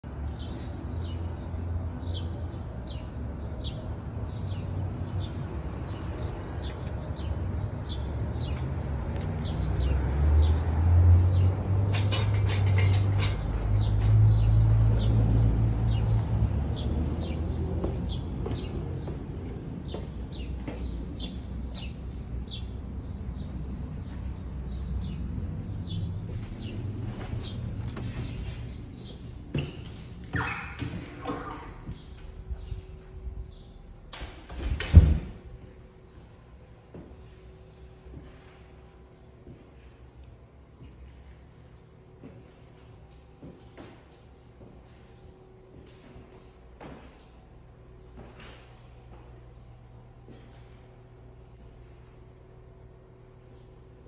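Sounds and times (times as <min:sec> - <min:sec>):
steady low rumble: 0:11.4 - 0:30.3, 0:31.8 - 0:54.0.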